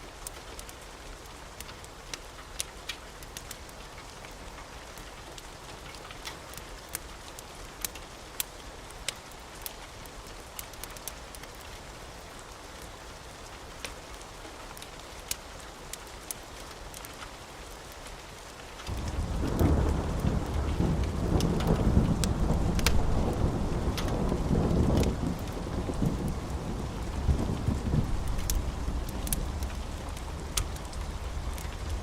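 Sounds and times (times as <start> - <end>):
steady rain: 0.0 - 32.0
wood fire crackling: 0.1 - 32.0
deep rumble of thunder: 18.9 - 32.0.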